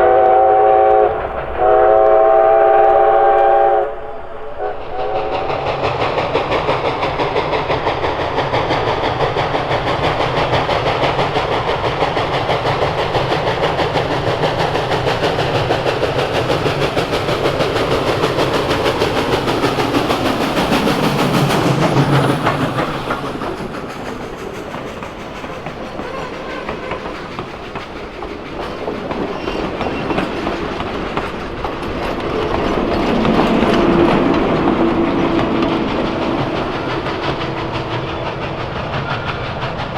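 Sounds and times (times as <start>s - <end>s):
steam train wheel clatter: 0.0s - 39.9s.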